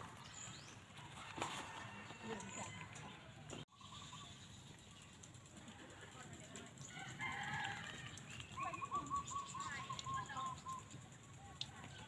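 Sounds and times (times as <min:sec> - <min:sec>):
birds calling: 0:02.4 - 0:05.5, 0:06.8 - 0:11.1
rapid repeated bird notes: 0:03.7 - 0:12.0.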